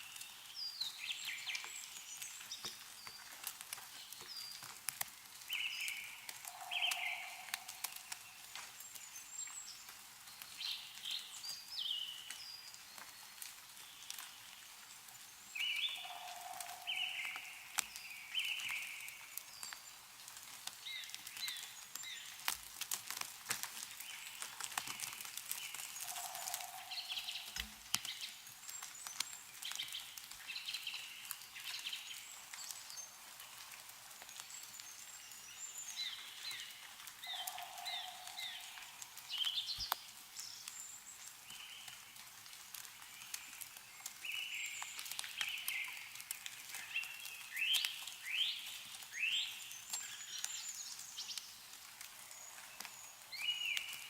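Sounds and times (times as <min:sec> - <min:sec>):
meltwater dripping: 0:00.0 - 0:54.0
small birds chirping: 0:00.0 - 0:54.0
snow falling from trees: 0:00.0 - 0:54.0.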